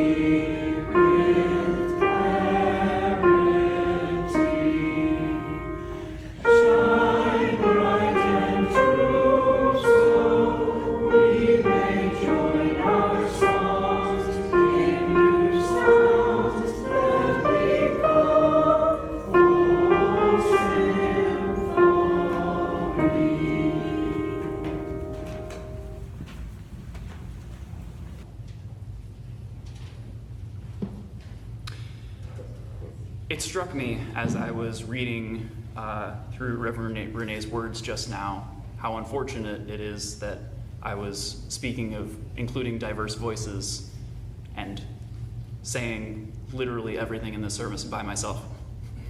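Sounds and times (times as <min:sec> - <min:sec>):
voices singing a hymn in harmony: 0:00.0 - 0:26.2.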